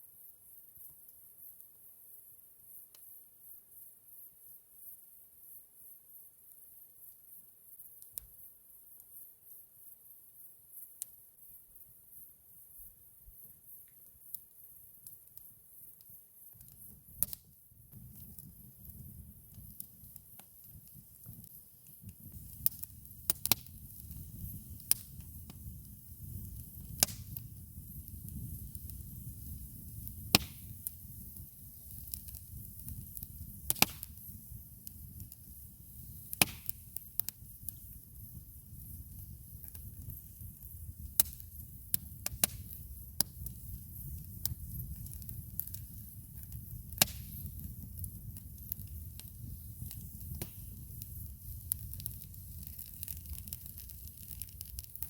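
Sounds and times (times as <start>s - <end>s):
campfire popping and crackling: 13.4s - 55.0s.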